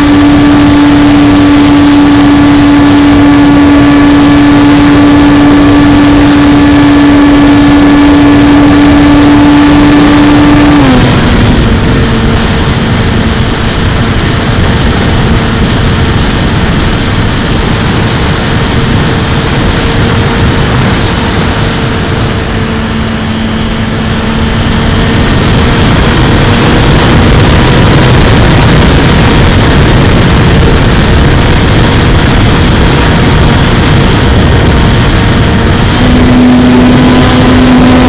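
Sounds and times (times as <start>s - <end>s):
electric motor and propeller whine: 0.0s - 38.0s
wind rush over microphone: 0.0s - 38.0s.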